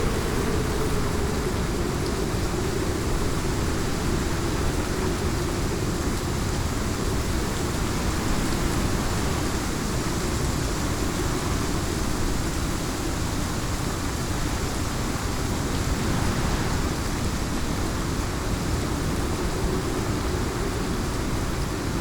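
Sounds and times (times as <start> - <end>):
heavy rain hiss: 0.0 - 22.0
deep rumble: 15.4 - 18.8.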